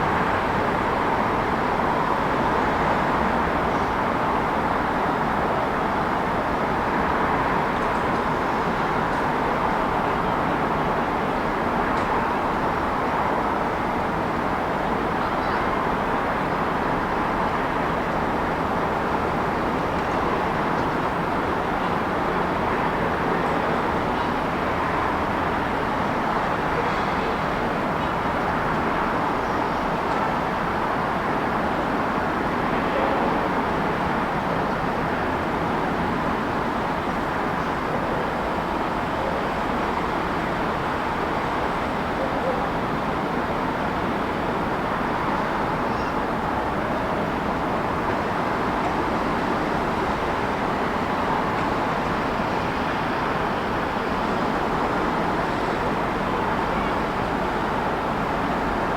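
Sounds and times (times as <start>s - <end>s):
road traffic noise: 0.0s - 58.9s.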